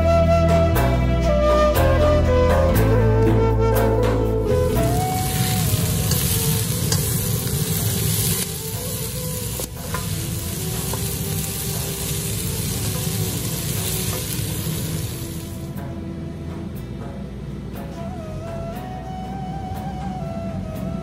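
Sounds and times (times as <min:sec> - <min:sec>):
food sizzling in a wok: 0:04.6 - 0:15.9.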